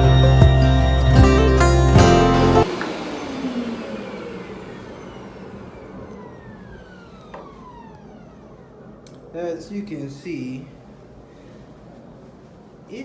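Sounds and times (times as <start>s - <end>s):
background music: 0.0s - 2.7s
carpet cleaner motor spinning down: 2.3s - 9.3s.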